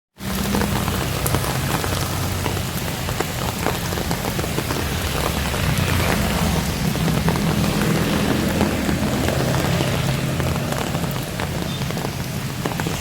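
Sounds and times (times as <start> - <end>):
heavy rain falling: 0.1 - 13.0.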